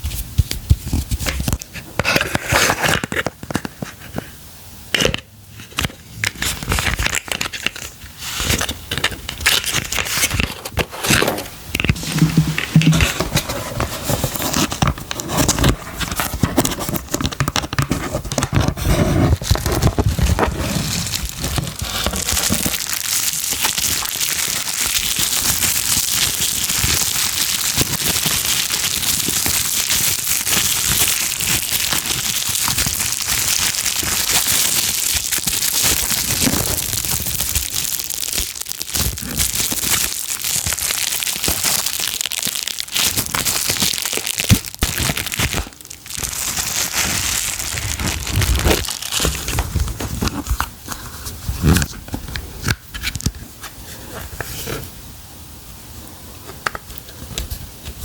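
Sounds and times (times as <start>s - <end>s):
packaging material crinkling: 5.6s - 53.4s.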